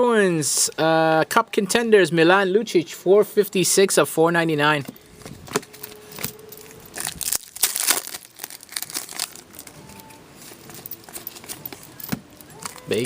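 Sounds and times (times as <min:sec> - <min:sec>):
card pack wrapper crinkling and tearing: 0:06.6 - 0:09.8.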